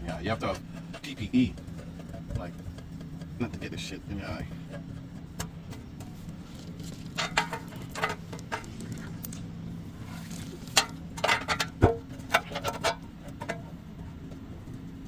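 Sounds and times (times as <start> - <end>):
low machine hum: 0.0 - 15.0
metal tools clanking: 7.2 - 8.9, 10.7 - 13.6.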